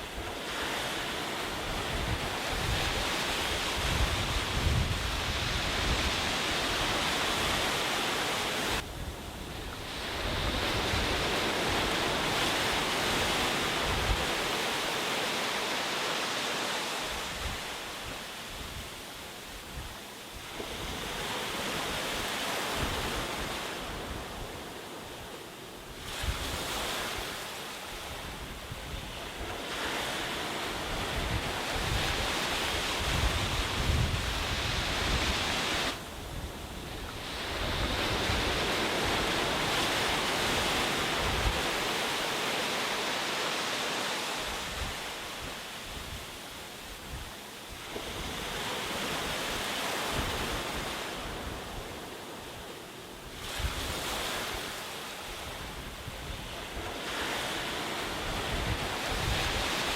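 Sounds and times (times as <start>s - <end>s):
wind buffeting microphone: 0.0s - 14.7s, 28.0s - 42.2s, 55.4s - 59.9s
sea waves breaking on beach: 0.0s - 59.9s.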